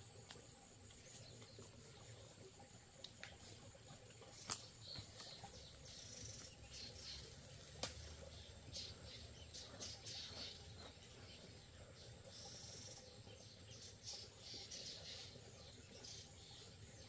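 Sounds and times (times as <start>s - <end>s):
faint bird chirps: 4.3s - 17.0s.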